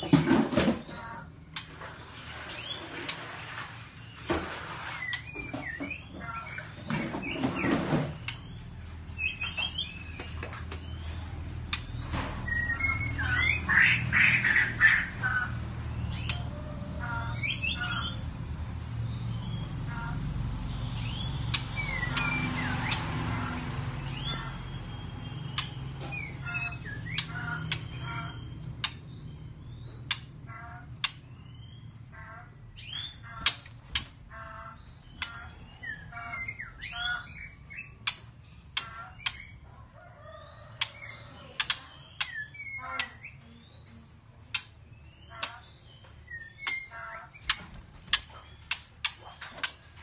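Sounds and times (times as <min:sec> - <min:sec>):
bird chirps: 0:04.0 - 0:50.0
bird calling with sharp clicks: 0:08.2 - 0:08.7, 0:11.7 - 0:13.8, 0:14.4 - 0:15.4, 0:16.1 - 0:16.5, 0:21.0 - 0:23.1, 0:24.1 - 0:31.6, 0:32.8 - 0:39.6, 0:40.7 - 0:50.0.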